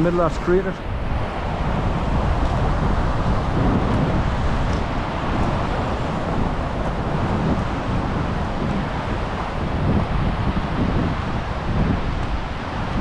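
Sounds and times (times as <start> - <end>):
wind buffeting microphone: 0.0 - 13.0
river rushing over rocks: 0.1 - 13.0.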